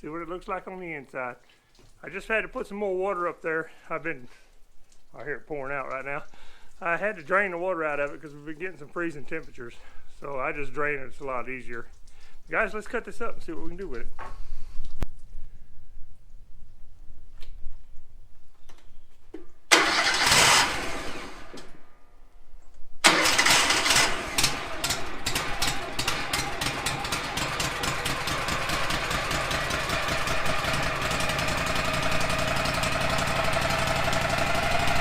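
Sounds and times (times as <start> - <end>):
sawmill engine starting and running: 0.0 - 1.4, 6.8 - 11.8, 19.7 - 21.9, 23.0 - 35.0.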